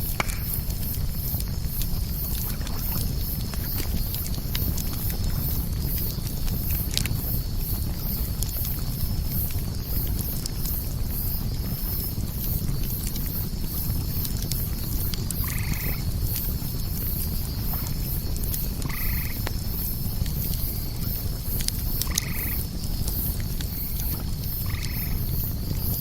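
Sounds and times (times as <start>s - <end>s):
bonfire crackling and popping: 0.0s - 26.0s
frog croaking: 15.4s - 16.0s, 18.8s - 19.4s, 22.0s - 22.6s, 24.6s - 25.3s.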